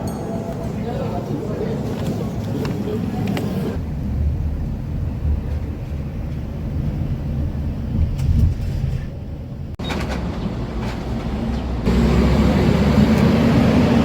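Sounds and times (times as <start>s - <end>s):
steady low rumble: 3.7s - 9.8s.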